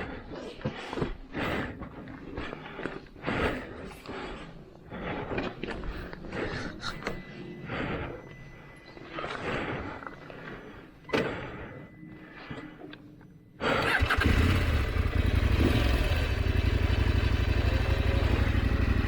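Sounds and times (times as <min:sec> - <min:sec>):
motorcycle engine starting and idling: 0:13.6 - 0:19.0.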